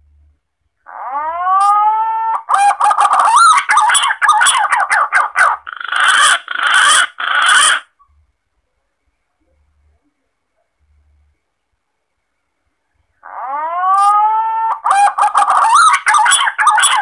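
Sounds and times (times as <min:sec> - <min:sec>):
pigeon lure call whistling: 0:13.5 - 0:17.0.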